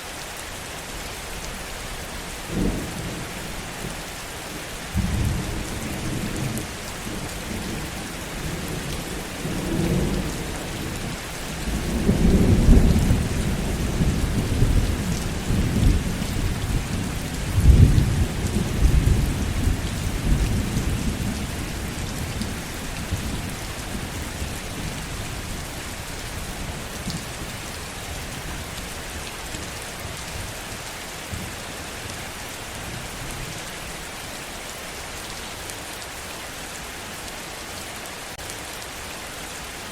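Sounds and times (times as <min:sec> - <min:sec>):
heavy rain hissing: 0:00.0 - 0:39.9
rolling thunder: 0:11.6 - 0:25.0.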